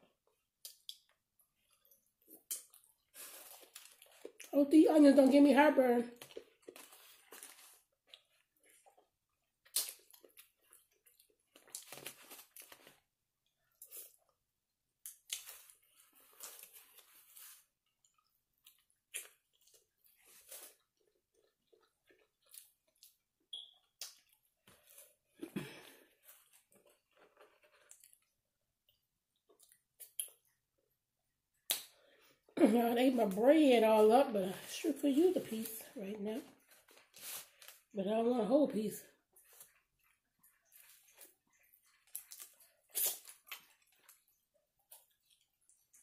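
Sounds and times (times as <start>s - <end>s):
close-miked chewing: 0.3s - 4.6s, 6.1s - 14.4s, 15.1s - 30.6s, 39.2s - 46.0s.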